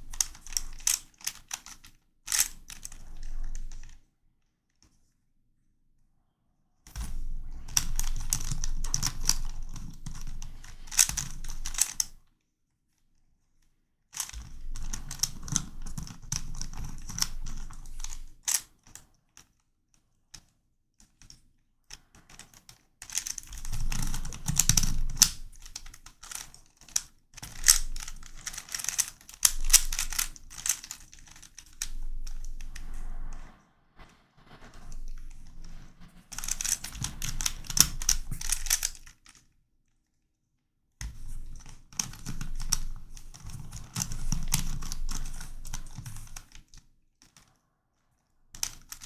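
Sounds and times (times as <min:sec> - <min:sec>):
plastic puzzle pieces clicking: 0:00.0 - 0:03.1, 0:07.8 - 0:12.1, 0:16.3 - 0:18.7, 0:23.0 - 0:31.9, 0:36.4 - 0:39.4.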